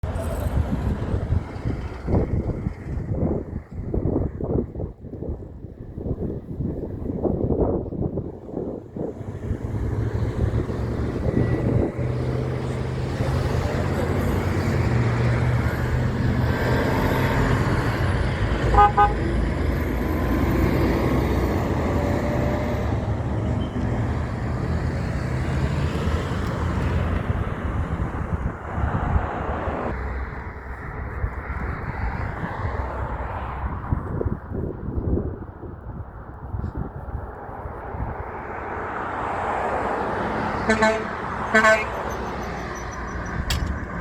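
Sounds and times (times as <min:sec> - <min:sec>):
truck engine passing: 0:00.0 - 0:04.1, 0:08.9 - 0:34.0, 0:37.9 - 0:44.0
truck horn toot: 0:18.6 - 0:19.4, 0:40.6 - 0:43.1.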